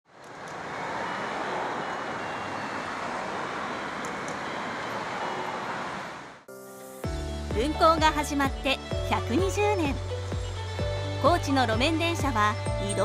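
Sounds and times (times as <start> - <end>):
street traffic rushing: 0.1 - 6.5.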